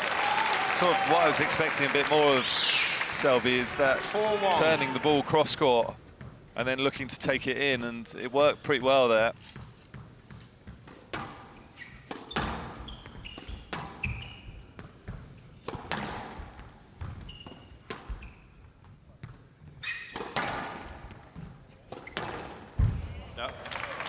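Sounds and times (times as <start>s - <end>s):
sports shoes squeaking: 0.0s - 16.2s, 17.1s - 18.6s, 19.6s - 20.4s.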